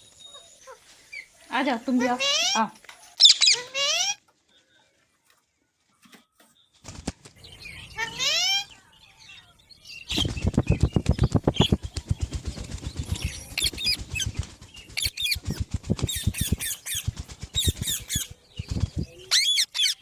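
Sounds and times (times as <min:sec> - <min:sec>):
parakeet screeching calls: 0:03.2 - 0:04.2
parakeet wings flapping: 0:06.8 - 0:07.4, 0:10.1 - 0:20.0.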